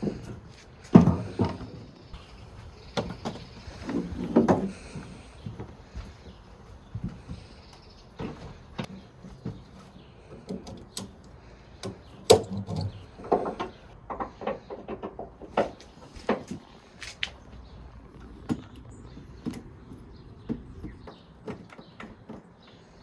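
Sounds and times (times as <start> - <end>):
irregular knocks and clicks: 3.0 - 16.7.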